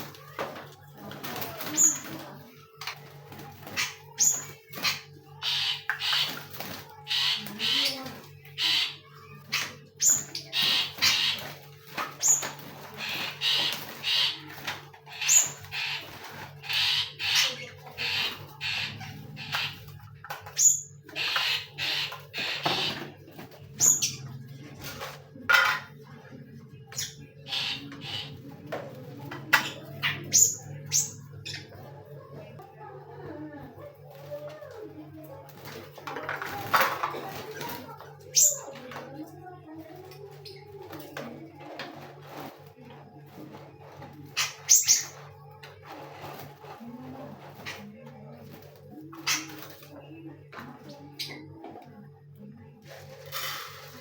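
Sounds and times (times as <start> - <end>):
birds squawking: 0.0 - 25.2, 26.8 - 28.7, 29.5 - 32.5, 44.3 - 46.8.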